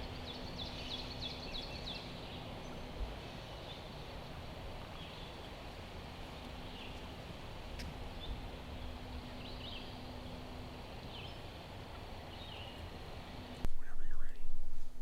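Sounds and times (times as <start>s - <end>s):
faint songbird chirps: 0.0s - 7.2s, 8.1s - 10.4s, 11.0s - 12.9s.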